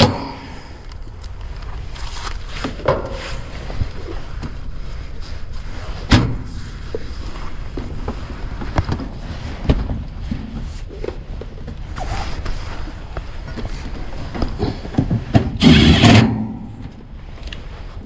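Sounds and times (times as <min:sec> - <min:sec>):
steady low rumble: 0:15.6 - 0:18.0.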